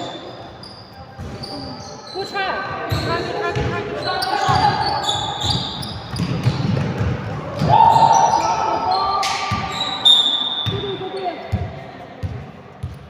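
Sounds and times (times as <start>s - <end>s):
shoe squeaks: 0.0s - 6.8s, 8.0s - 11.5s
basketball bouncing on court: 2.9s - 8.1s, 9.2s - 10.0s, 10.6s - 13.0s.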